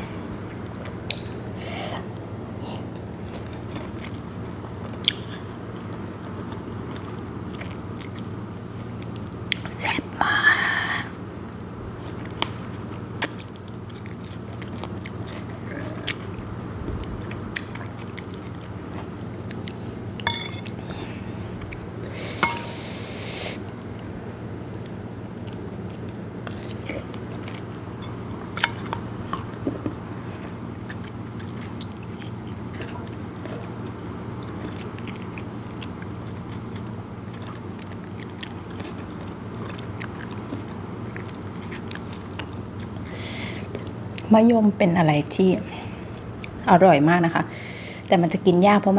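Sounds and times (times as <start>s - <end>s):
steady low hum: 0.0s - 48.9s
chewing crunchy fruit: 2.9s - 9.8s, 11.3s - 23.0s, 24.7s - 44.3s.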